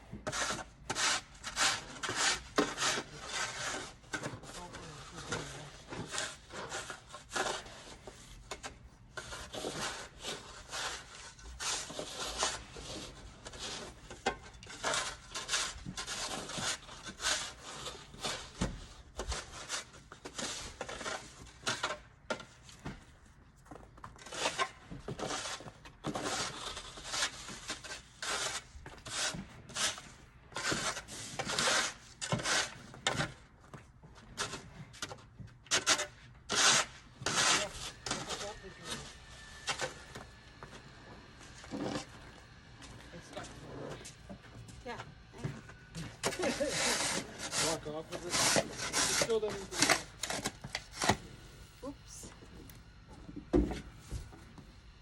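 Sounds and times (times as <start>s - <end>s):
snow shovel scraping: 0.3s - 22.0s, 24.2s - 33.4s, 35.7s - 40.3s, 41.0s - 42.2s, 45.4s - 51.5s.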